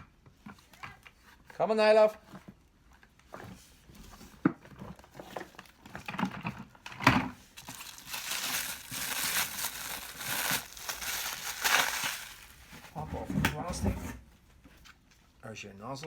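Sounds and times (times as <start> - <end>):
plastic packaging crinkling: 7.4 - 13.0.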